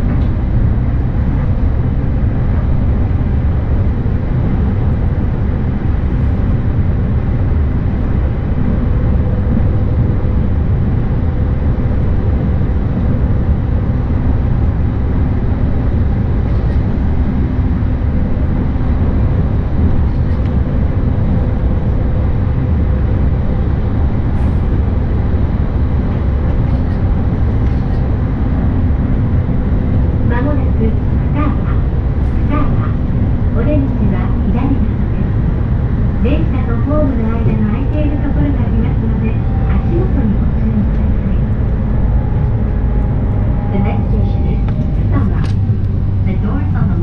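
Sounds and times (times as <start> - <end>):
faint steady hum: 0.0 - 47.0
train running gear rumble: 0.0 - 47.0.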